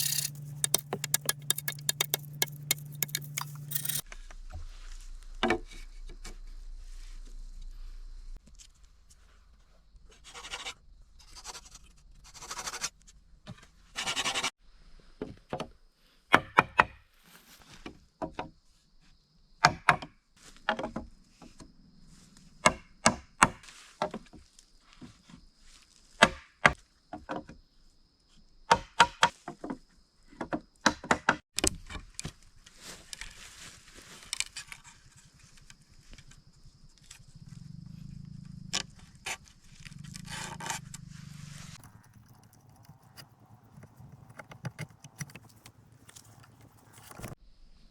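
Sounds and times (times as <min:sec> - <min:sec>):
blade chopping wood: 0:00.0 - 0:04.0, 0:41.8 - 0:47.4.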